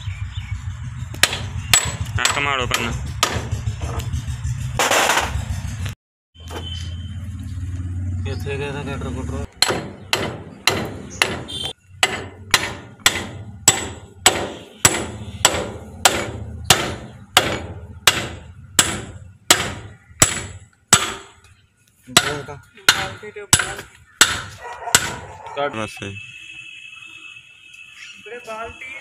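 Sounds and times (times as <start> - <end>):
hammer striking steel: 1.1 - 4.0, 9.6 - 21.5, 22.1 - 25.2.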